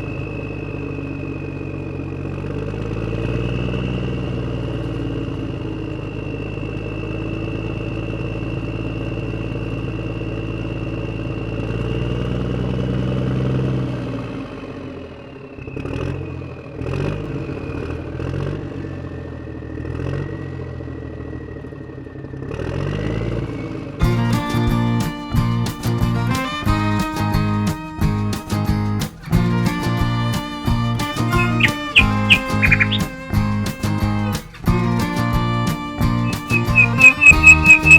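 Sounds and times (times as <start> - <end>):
engine clicks: 24.0 - 37.9
guitar music: 24.0 - 37.9
toy diesel engine running: 24.0 - 37.9.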